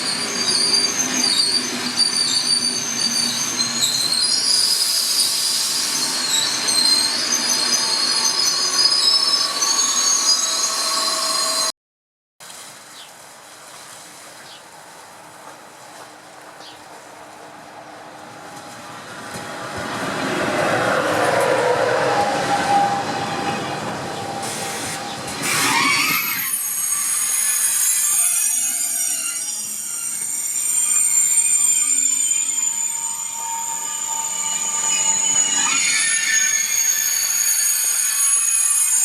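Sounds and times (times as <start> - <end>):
metallic wheel squeal: 0.0 - 11.7, 22.0 - 39.0
train rumbling on rails: 14.8 - 39.0.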